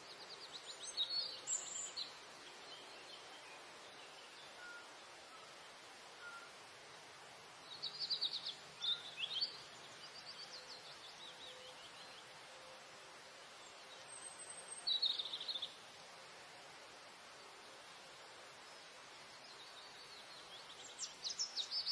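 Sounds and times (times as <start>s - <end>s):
small songbirds singing: 0.0s - 16.1s, 16.9s - 21.9s
steady background hiss: 0.0s - 21.9s.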